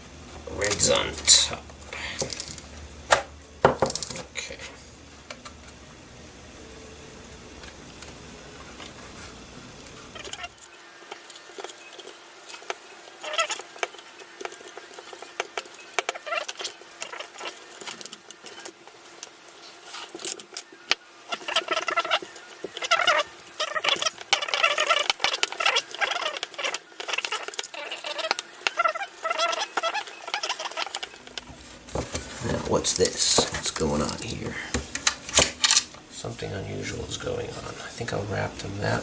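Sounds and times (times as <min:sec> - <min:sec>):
steady low hum: 0:00.0 - 0:11.1, 0:31.1 - 0:39.0
plastic parts clicking and rustling: 0:02.0 - 0:04.3, 0:30.3 - 0:36.0.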